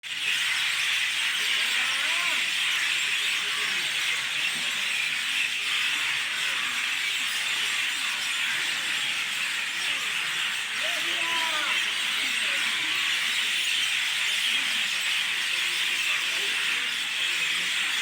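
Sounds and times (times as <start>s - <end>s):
chatter of many birds: 0.0s - 18.0s.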